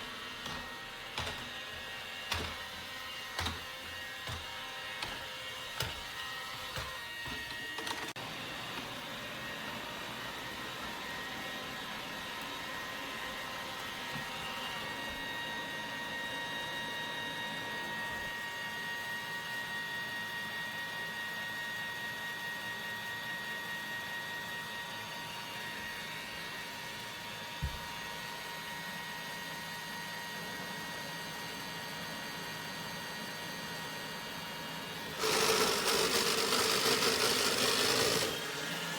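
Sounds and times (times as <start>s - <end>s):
robot vacuum running: 0.0s - 16.0s, 34.2s - 38.9s.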